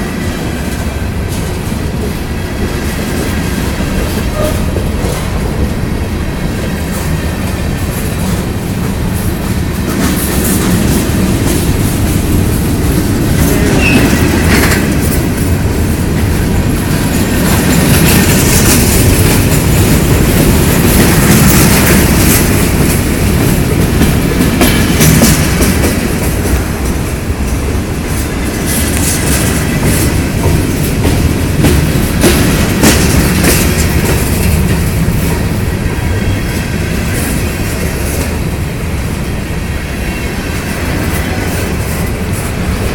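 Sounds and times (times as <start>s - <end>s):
wheels clacking over rail joints: 0.0s - 39.3s
train wheel squeal: 4.2s - 4.9s, 13.4s - 15.4s, 39.9s - 42.6s.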